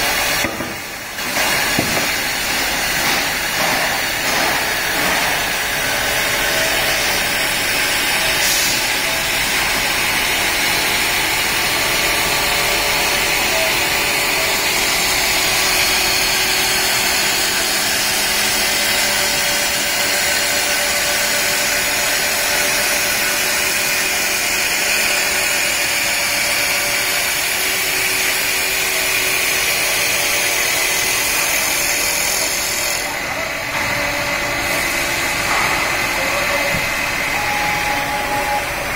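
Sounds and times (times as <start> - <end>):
wood lathe running with whine: 6.0 - 38.9.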